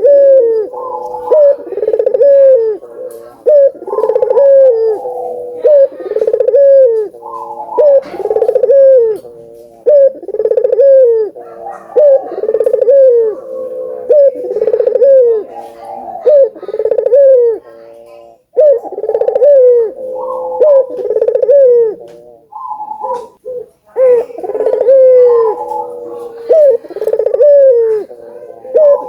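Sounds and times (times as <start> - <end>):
doves cooing loudly: 0.0 - 29.0.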